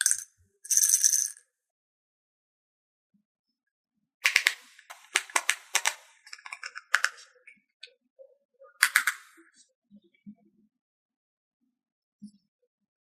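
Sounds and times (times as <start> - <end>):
plastic toy pieces clicking: 4.2 - 7.2, 8.8 - 9.3.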